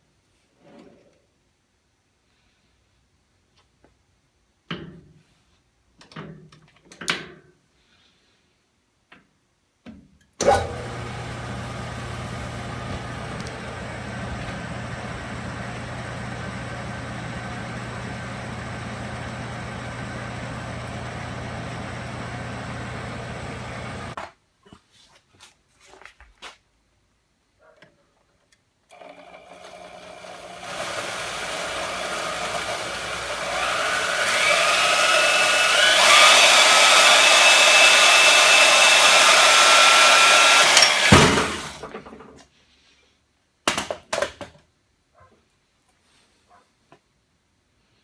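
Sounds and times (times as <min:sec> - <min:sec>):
shop machine humming: 0:10.4 - 0:24.2, 0:28.9 - 0:41.9.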